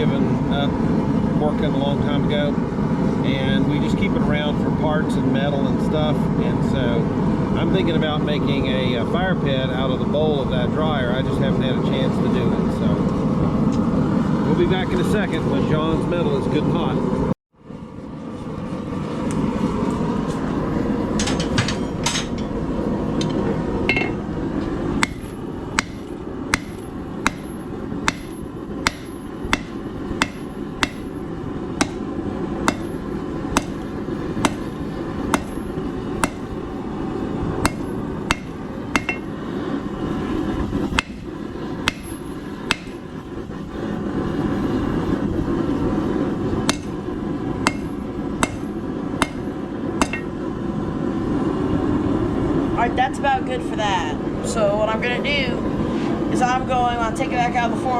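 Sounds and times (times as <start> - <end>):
low rushing noise: 9.2 - 57.9
hammer striking steel on anvil: 21.1 - 22.6, 23.2 - 24.2, 25.0 - 31.2, 31.8 - 36.6, 37.6 - 39.4, 40.9 - 43.1, 46.6 - 50.4.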